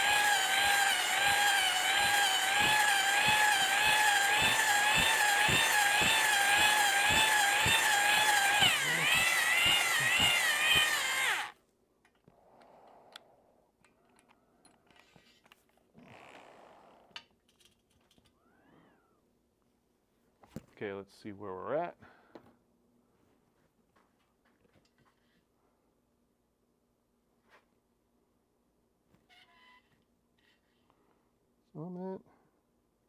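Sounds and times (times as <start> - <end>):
power drill whining: 0.0 - 11.6.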